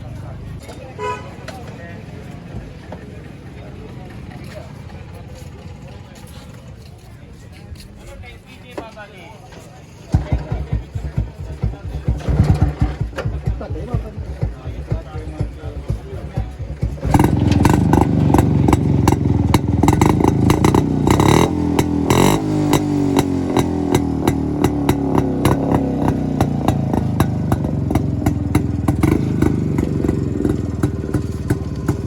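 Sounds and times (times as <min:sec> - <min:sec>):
two-stroke motorcycle engine: 0:10.1 - 0:32.0.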